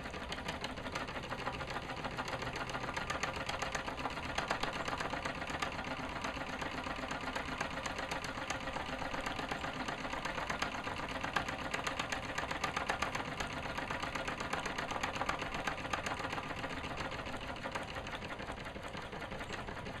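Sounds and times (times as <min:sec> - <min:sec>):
small engine clattering: 0:00.0 - 0:20.0.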